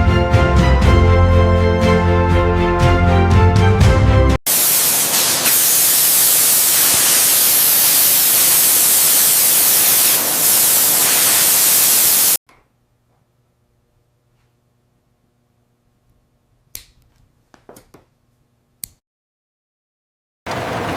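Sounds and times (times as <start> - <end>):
music: 0.0 - 4.4
loud steady hiss: 4.5 - 12.4.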